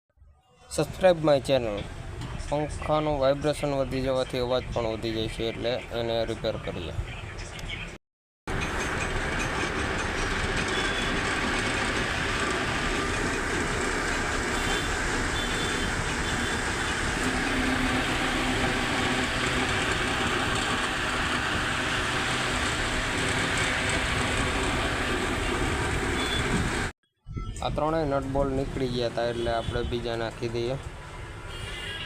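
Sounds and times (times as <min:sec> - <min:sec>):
table fan vibrating: 0:08.5 - 0:26.9.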